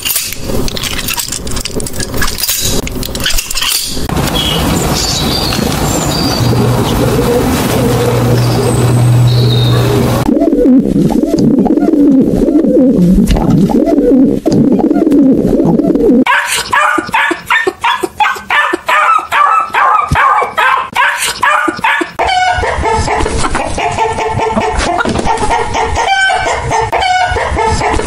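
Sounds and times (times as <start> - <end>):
pigeons cooing: 4.3 - 20.0
dog barking: 9.5 - 10.2, 16.3 - 24.8, 25.8 - 28.0
chicken clucking: 16.3 - 28.0.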